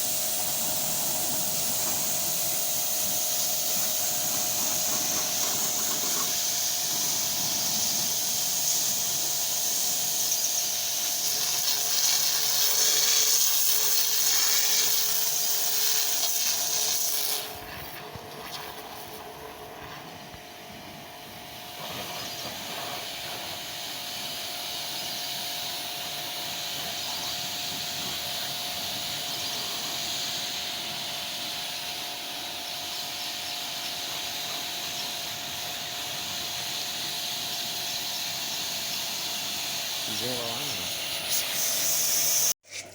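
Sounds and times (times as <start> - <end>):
steady machine hum: 0.0 - 11.3
high-pressure water spray hissing: 0.0 - 42.9.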